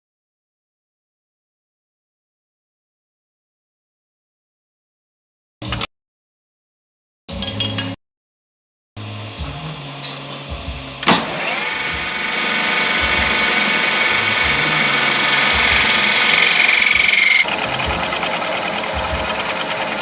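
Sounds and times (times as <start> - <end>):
machine tool motor whining: 11.0 - 20.0.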